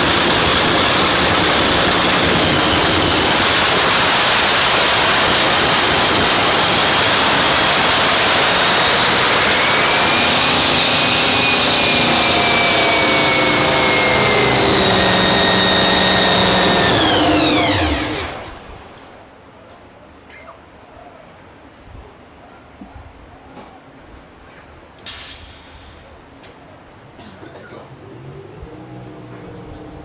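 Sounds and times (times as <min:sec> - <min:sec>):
supercharged race car engine running: 0:00.0 - 0:19.0
high engine whine: 0:00.0 - 0:19.2.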